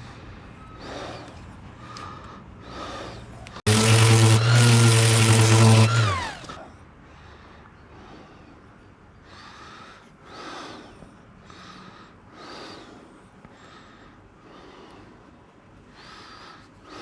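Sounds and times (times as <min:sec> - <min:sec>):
person breathing heavily: 0:00.0 - 0:03.4, 0:07.0 - 0:17.0.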